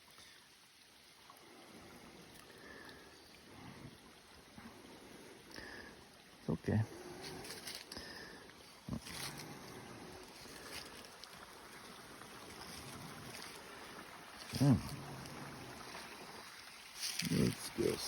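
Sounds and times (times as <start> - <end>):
short voice-like sound: 14.5 - 15.1.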